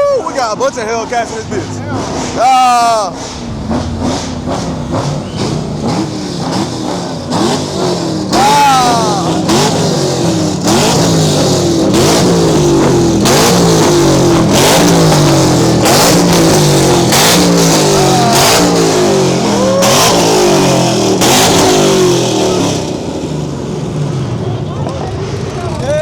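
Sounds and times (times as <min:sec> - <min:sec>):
car engine revving: 0:00.4 - 0:26.0
high squeal: 0:02.2 - 0:05.8.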